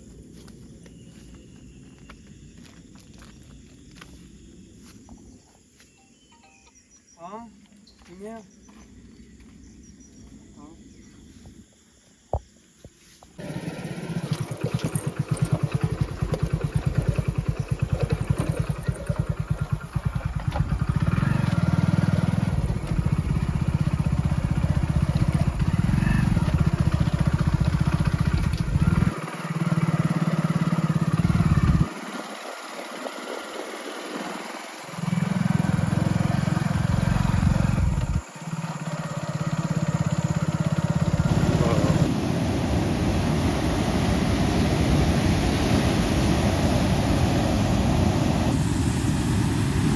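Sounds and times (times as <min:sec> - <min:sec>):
motorcycle engine rumble: 0:13.4 - 0:33.6, 0:34.2 - 0:49.9.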